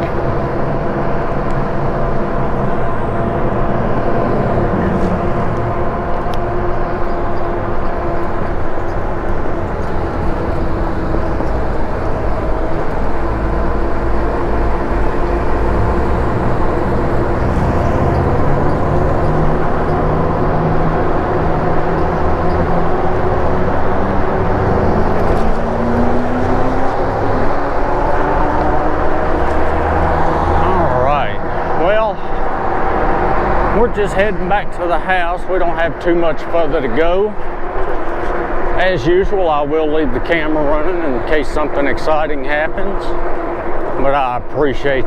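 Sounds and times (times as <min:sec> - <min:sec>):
rising tone: 0:00.0 - 0:34.8
wind and road rumble: 0:00.0 - 0:45.0.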